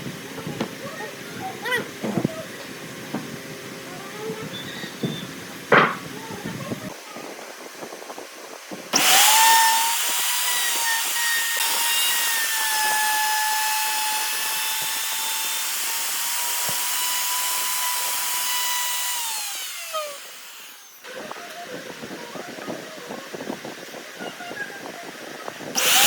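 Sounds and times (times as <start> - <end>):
power tool motor whining: 8.9 - 22.2, 25.7 - 26.0.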